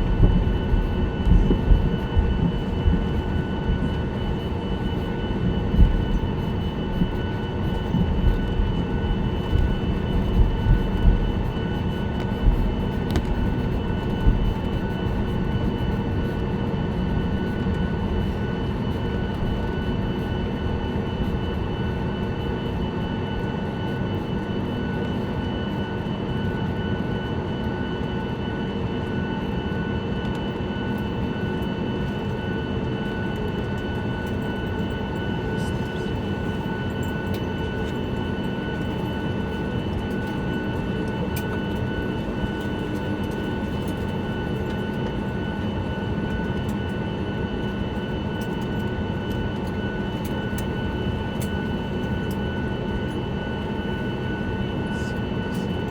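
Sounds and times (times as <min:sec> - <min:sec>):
jet engines whining: 0:00.0 - 0:19.8, 0:33.1 - 0:55.9
airplane cabin rumble: 0:00.0 - 0:22.0, 0:33.0 - 0:55.9.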